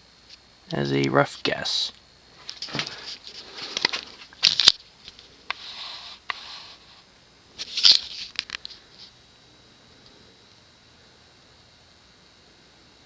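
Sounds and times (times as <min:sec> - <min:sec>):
rustling and scraping: 0:02.4 - 0:07.0, 0:07.6 - 0:09.2.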